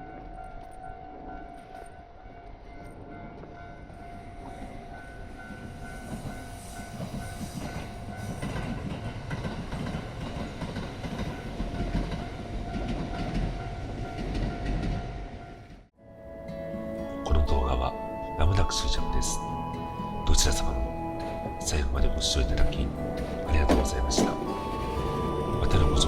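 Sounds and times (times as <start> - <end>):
train rumble and wheel noise: 0.0 - 26.0
level crossing warning bell: 17.0 - 26.0.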